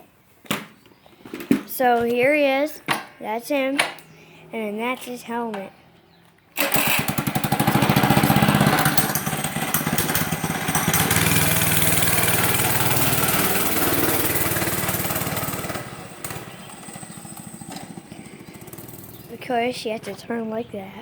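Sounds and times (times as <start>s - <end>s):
dirt bike engine running: 6.7s - 20.7s.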